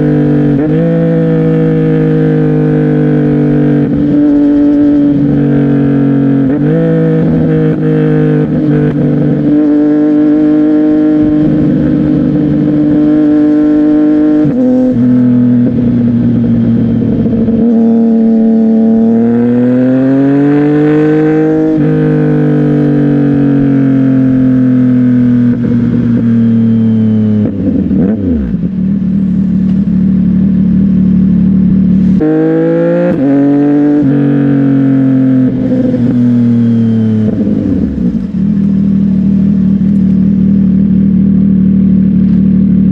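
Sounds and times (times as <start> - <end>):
motorcycle engine while riding: 0.0 - 42.9.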